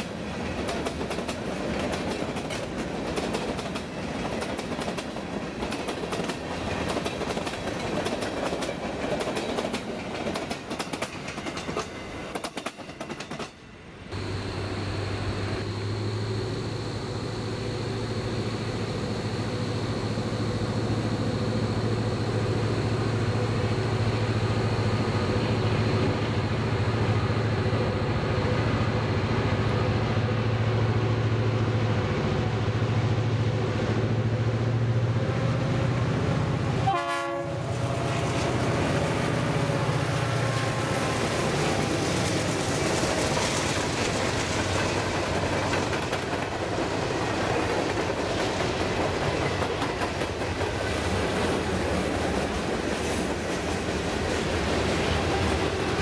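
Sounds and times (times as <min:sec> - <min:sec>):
train wheels clattering over rail joints: 0:00.0 - 0:13.6, 0:41.2 - 0:56.0
distant diesel locomotive drone: 0:00.0 - 0:56.0.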